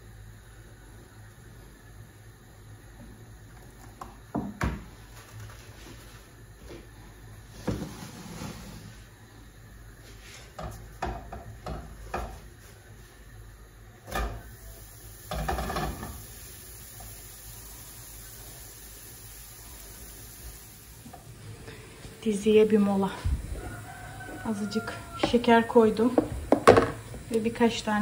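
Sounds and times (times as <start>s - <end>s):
knocks and clicks of kitchenware: 10.6s - 12.4s, 26.1s - 27.0s
kitchenware clatter: 15.3s - 16.2s, 26.1s - 27.1s.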